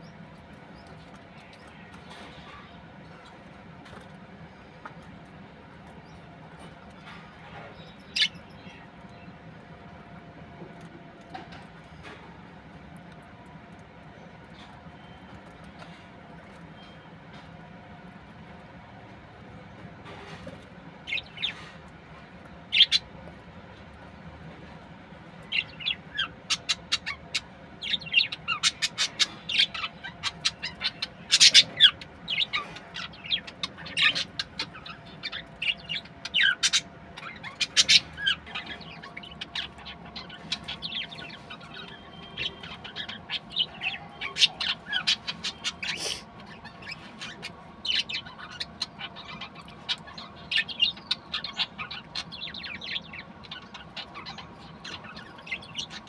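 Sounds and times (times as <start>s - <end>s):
budgerigars chirping: 22.7s - 23.1s, 25.4s - 56.0s
bird squawks: 25.5s - 56.0s.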